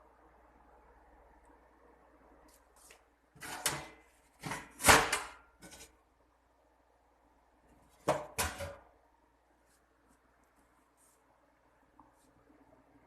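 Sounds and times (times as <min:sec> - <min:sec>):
household items knocking and scraping: 0:07.9 - 0:08.8.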